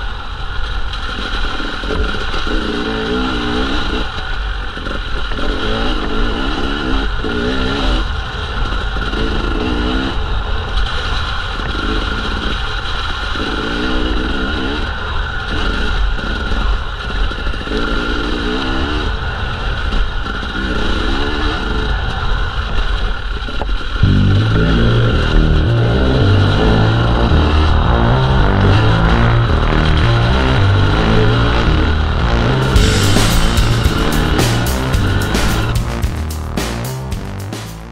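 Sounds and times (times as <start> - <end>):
dirt bike engine revving: 24.0 - 37.9.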